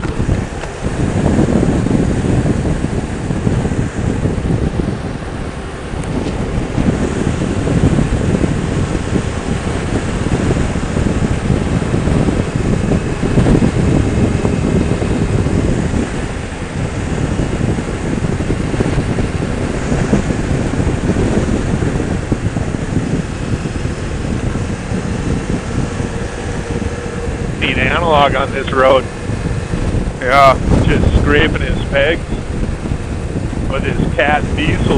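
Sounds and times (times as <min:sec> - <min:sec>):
motorcycle engine running: 0:00.0 - 0:34.9
wind rushing over microphone: 0:00.0 - 0:34.9.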